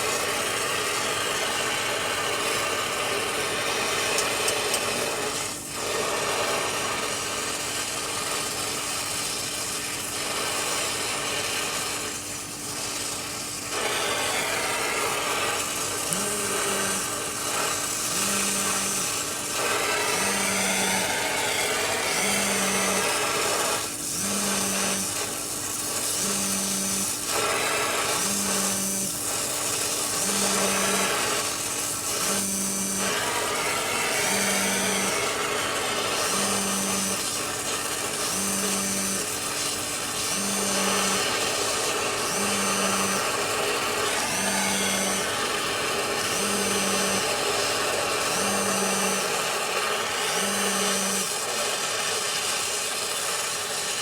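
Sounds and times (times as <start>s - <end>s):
tool rasping on a surface: 10.1s - 53.0s.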